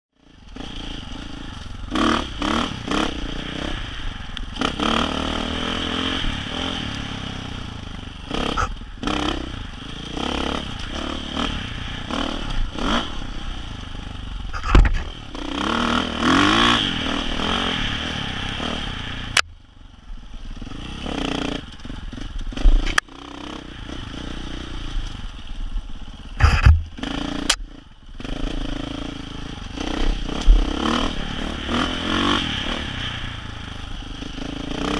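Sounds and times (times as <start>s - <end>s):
dirt bike engine revving: 0.2s - 19.4s, 20.4s - 34.9s
bike clattering and scraping: 14.4s - 18.3s, 26.3s - 27.6s
sharp knocks: 26.4s - 26.9s.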